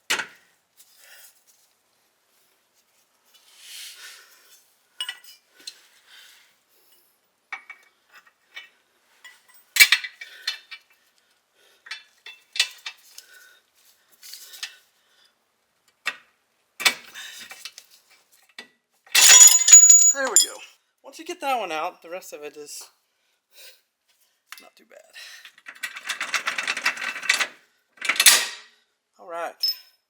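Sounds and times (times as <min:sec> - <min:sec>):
tools clinking on steel: 0:19.2 - 0:20.6.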